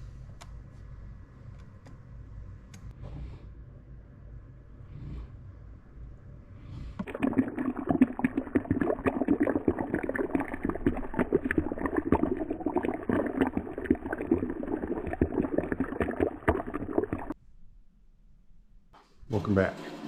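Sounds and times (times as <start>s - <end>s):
coffee maker bubbling and gurgling: 7.0s - 17.4s.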